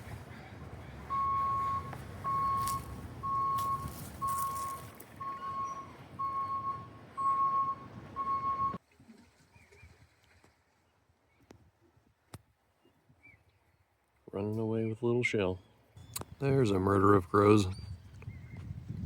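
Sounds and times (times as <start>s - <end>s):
vehicle reversing alarm beeping: 0.0s - 8.8s.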